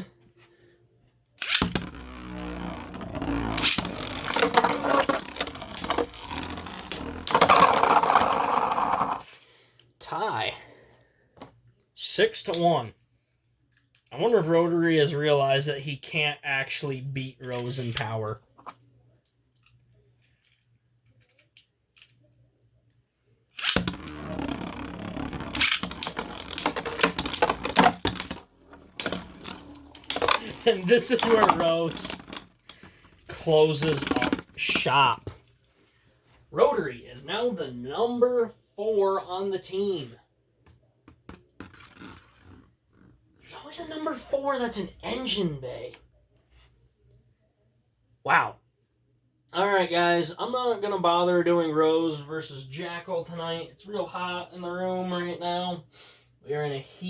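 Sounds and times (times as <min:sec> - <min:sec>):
sharp plastic hit: 0:01.4 - 0:09.2, 0:23.6 - 0:33.0, 0:33.7 - 0:35.4
spinning tops whirring and clashing: 0:01.4 - 0:09.2, 0:25.5 - 0:32.4.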